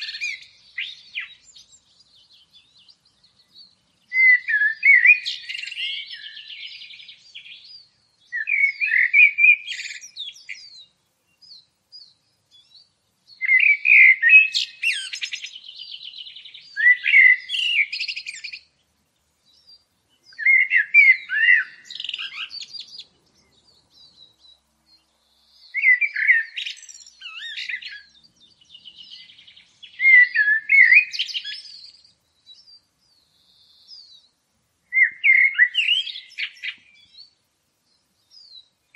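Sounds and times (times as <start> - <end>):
songbird warbling: 0.0 - 3.5, 4.1 - 10.8, 13.4 - 18.7, 19.7 - 24.4, 25.4 - 32.7, 34.9 - 37.4.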